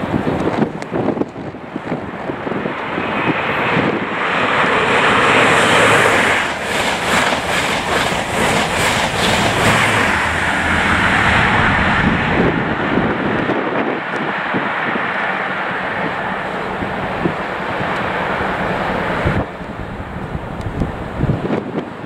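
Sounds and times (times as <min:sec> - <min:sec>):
train rushing past: 0:00.0 - 0:22.0
rhythmic wheel clacks: 0:06.4 - 0:10.0.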